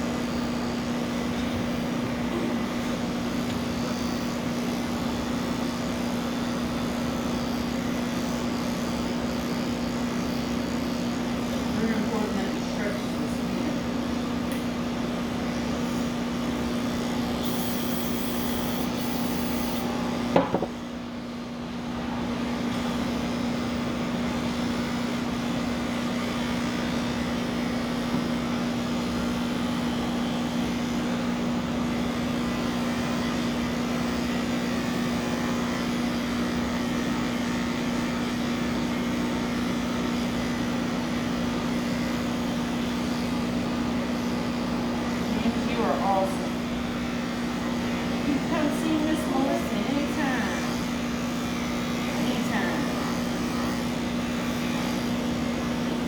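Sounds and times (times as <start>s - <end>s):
electric clippers humming: 0.0s - 56.0s
sharp knock: 20.4s - 20.7s.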